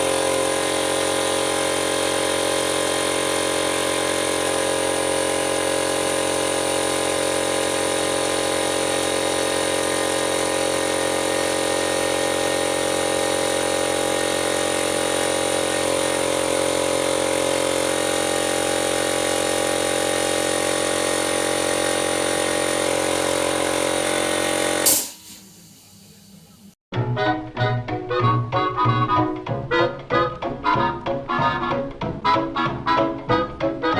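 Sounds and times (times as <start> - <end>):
air compressor running: 0.0 - 26.8
short sharp burst: 8.6 - 26.2.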